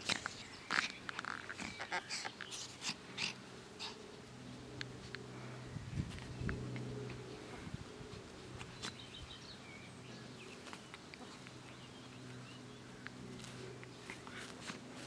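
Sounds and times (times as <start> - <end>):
soft ticks and rustles: 0.0 - 3.0, 4.5 - 5.4, 6.0 - 9.2, 10.2 - 15.0
faint low hum: 0.0 - 15.0
small birds chirping: 0.0 - 15.0.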